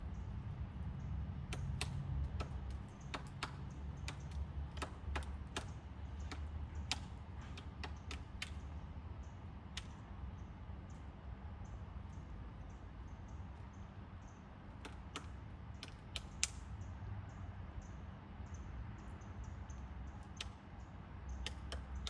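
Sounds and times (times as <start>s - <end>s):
woodpecker pecking at wood: 1.3s - 8.8s, 14.7s - 16.6s, 20.1s - 20.7s, 21.4s - 22.0s.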